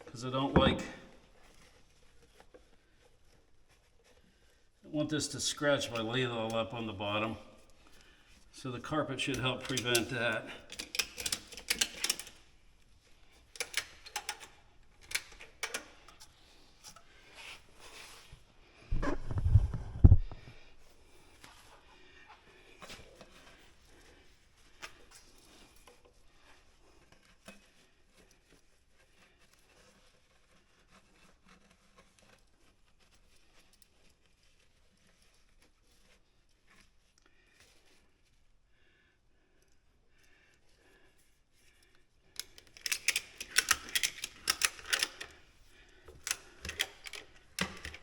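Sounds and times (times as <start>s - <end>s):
quiet rustling: 0.0s - 48.0s
ratchet strap clicks and knocks: 9.2s - 12.6s, 13.3s - 17.6s, 42.4s - 48.0s.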